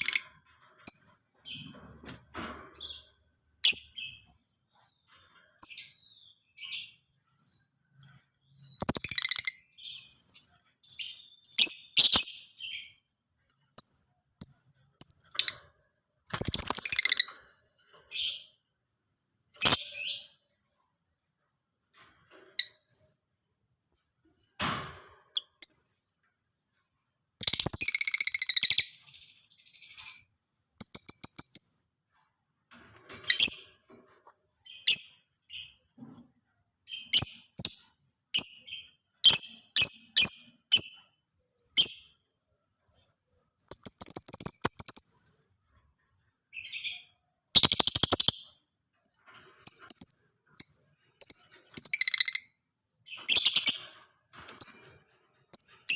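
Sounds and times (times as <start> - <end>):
lovebird chirping and chattering: 5.2 - 13.0, 13.8 - 15.6, 16.3 - 18.6, 19.6 - 20.4, 27.4 - 31.9, 34.6 - 35.8, 36.9 - 42.1, 42.9 - 45.5, 46.5 - 48.6, 49.6 - 54.0, 55.5 - 55.9.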